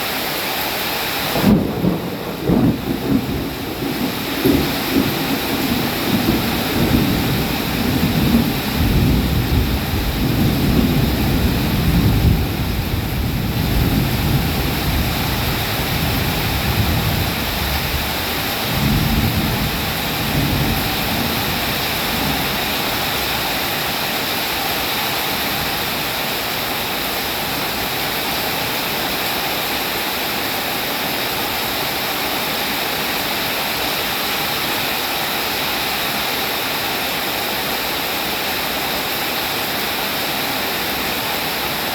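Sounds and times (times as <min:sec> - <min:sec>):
steady rain: 0:00.0 - 0:41.9
rolling thunder: 0:01.3 - 0:23.5.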